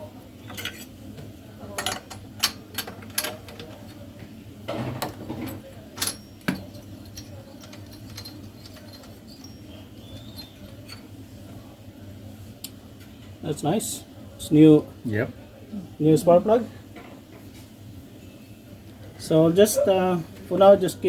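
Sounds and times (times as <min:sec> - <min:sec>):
metal tool clicking and clinking: 0:06.0 - 0:11.0.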